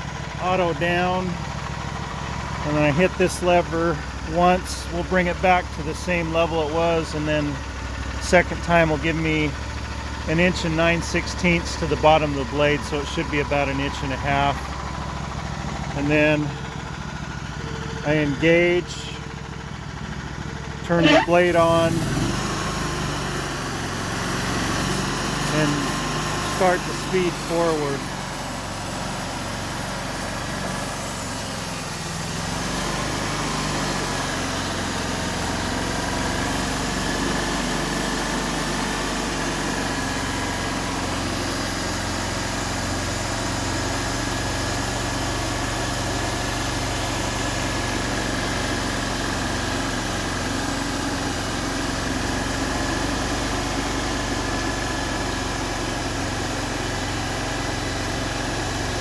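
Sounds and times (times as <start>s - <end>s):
band sawmill sawing log: 20.9s - 59.0s.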